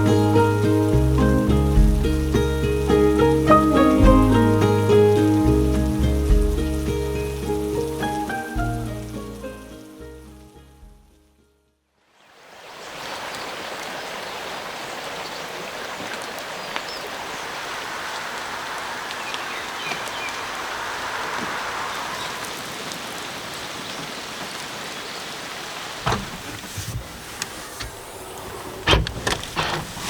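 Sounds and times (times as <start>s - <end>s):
steady rain falling: 0.0s - 10.9s, 12.1s - 30.0s
knocks: 26.0s - 27.0s.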